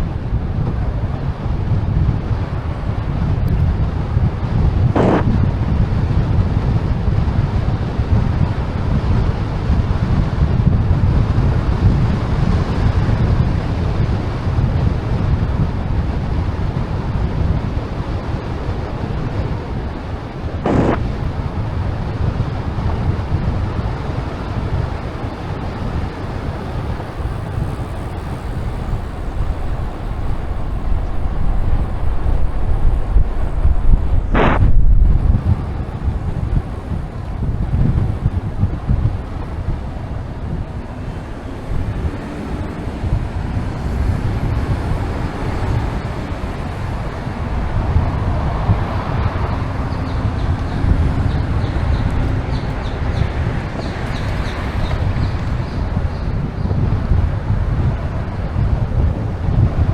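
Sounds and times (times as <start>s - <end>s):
wind buffeting microphone: 0.0s - 59.9s
brief sharp sound: 5.0s - 5.3s, 20.6s - 21.0s, 34.3s - 35.1s.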